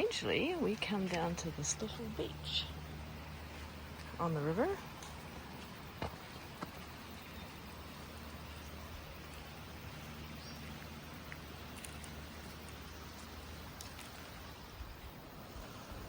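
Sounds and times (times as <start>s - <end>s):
faint ticks: 8.4s - 15.0s.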